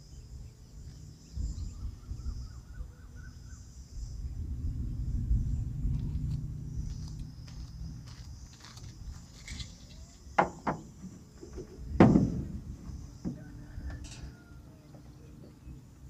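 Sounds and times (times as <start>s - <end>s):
high insect drone: 0.0s - 16.0s
sharp knocks and clunks: 10.3s - 14.3s.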